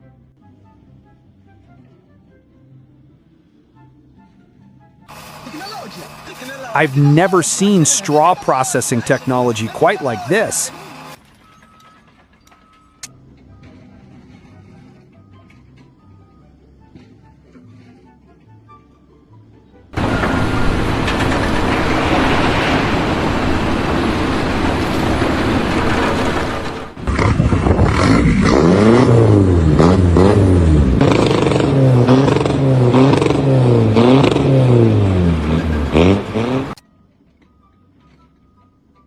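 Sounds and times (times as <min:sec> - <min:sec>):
machinery noise: 0:05.1 - 0:11.2, 0:20.0 - 0:36.8
engine revving up and down: 0:20.0 - 0:36.8.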